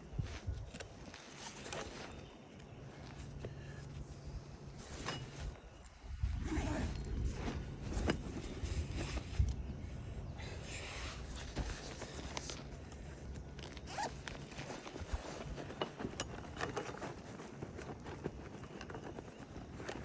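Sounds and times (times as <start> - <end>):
scrapes and clicks of roof shingles: 11.2 - 20.0.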